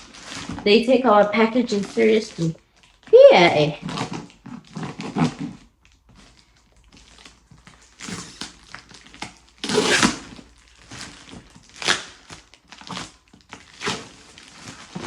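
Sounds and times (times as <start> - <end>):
packaging tearing and crackling: 3.7 - 15.0.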